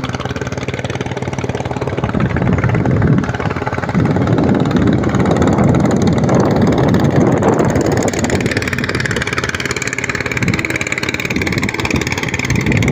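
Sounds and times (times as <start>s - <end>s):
motor engine running: 0.0s - 12.9s
rough rushing noise: 0.9s - 12.9s
faint high tone: 10.3s - 12.4s.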